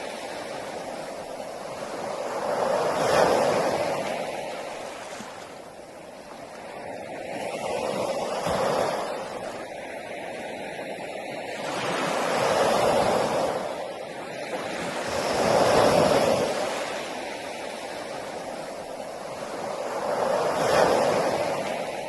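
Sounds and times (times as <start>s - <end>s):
sea waves breaking: 0.0s - 22.0s.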